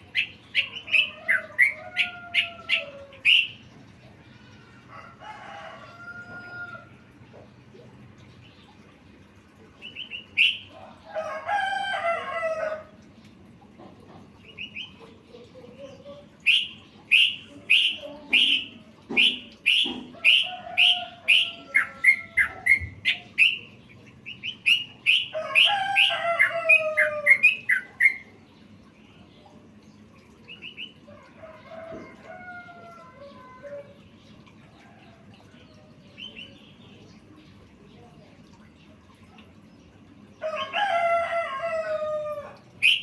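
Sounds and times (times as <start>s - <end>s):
rooster crowing: 4.9s - 7.0s, 11.0s - 12.9s, 25.4s - 27.4s, 40.4s - 42.6s
bulbul chirping song: 9.9s - 10.8s, 16.4s - 28.4s, 42.8s - 43.0s.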